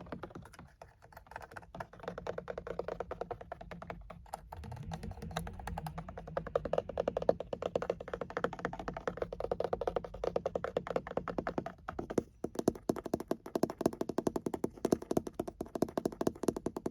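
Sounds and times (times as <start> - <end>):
rapid tapping on a car: 0.0 - 16.9.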